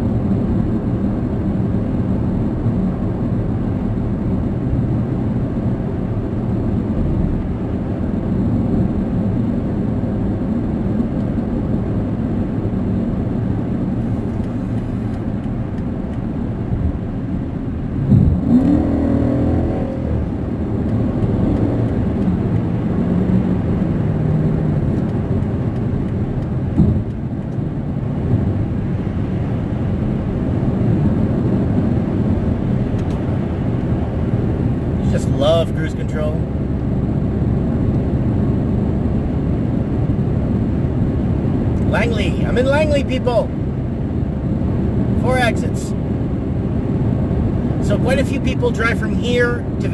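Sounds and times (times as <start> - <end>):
car road and engine noise: 0.0 - 49.9.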